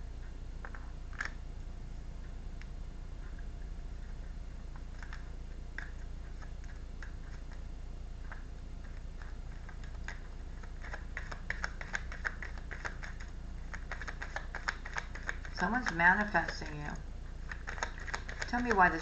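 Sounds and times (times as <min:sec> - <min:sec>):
low hum: 0:00.0 - 0:19.0
cards being shuffled: 0:09.2 - 0:16.7, 0:17.4 - 0:19.0.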